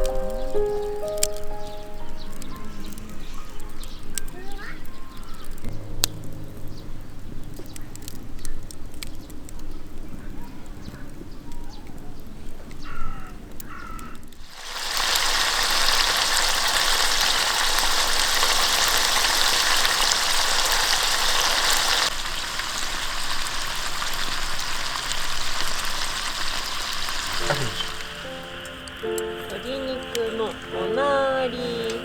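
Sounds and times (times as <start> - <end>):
food sizzling in a pan: 14.4 - 32.0.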